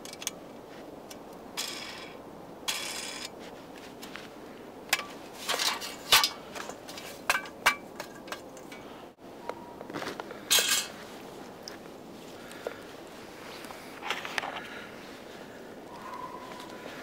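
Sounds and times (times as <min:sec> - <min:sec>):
metal objects clinking: 0:05.0 - 0:08.9.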